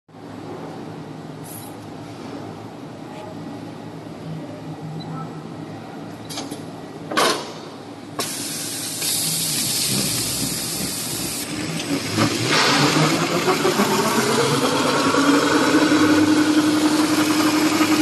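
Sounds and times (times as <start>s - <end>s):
machine hissing: 8.2s - 18.0s.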